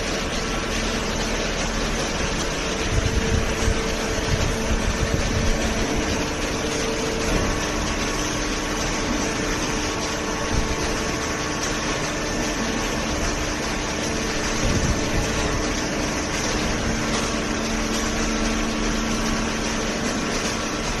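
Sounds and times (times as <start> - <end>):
hydraulic pump humming: 0.0 - 21.0.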